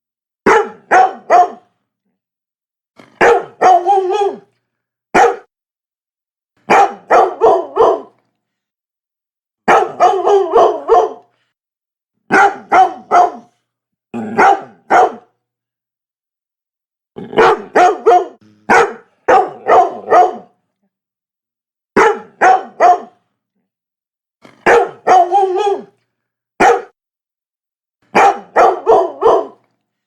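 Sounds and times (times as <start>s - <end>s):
dog barking: 0.5s - 1.7s, 3.0s - 4.5s, 5.1s - 5.5s, 6.6s - 8.2s, 9.6s - 11.3s, 12.3s - 13.6s, 14.2s - 15.4s, 17.3s - 20.6s, 22.0s - 23.2s, 24.4s - 25.9s, 26.6s - 27.0s, 28.1s - 29.6s.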